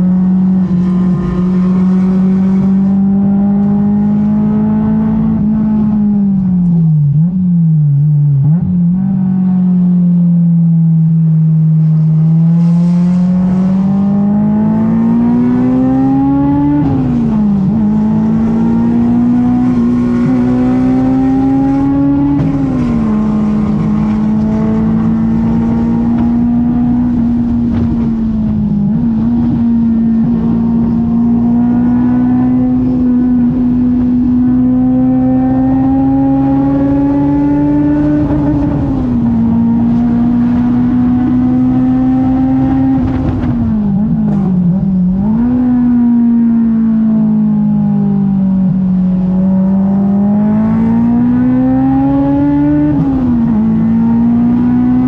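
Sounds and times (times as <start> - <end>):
car engine revving hard: 0.0 - 6.1, 11.8 - 47.5, 48.9 - 55.0.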